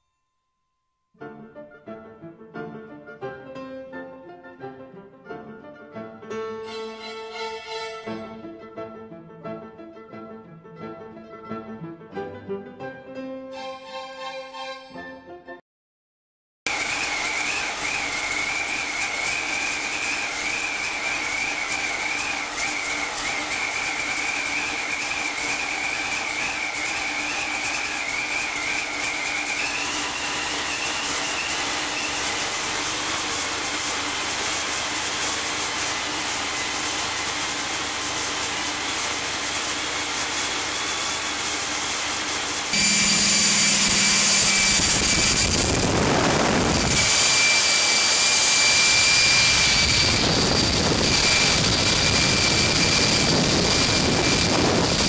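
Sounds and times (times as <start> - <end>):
engine running: 16.7 - 55.0
high whine: 16.7 - 55.0.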